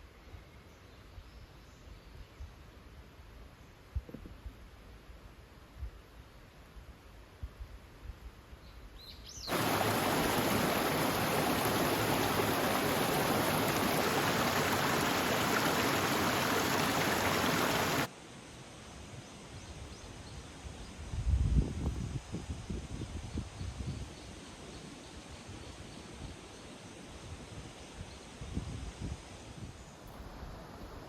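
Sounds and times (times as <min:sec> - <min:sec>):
rushing water: 0:09.5 - 0:18.1.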